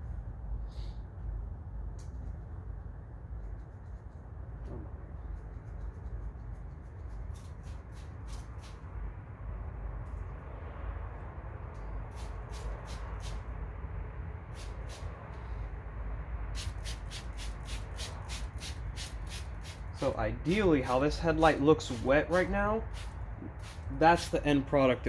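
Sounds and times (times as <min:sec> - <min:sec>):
low background hum: 0:00.0 - 0:25.0
spray bottle hissing squirts: 0:12.1 - 0:13.4, 0:14.5 - 0:15.1, 0:16.6 - 0:20.2, 0:21.8 - 0:24.4.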